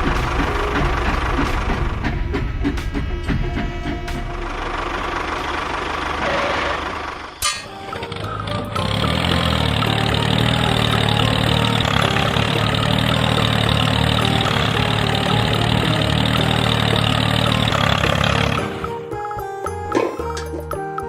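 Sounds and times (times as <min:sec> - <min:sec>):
mini tractor engine running: 0:04.5 - 0:18.9.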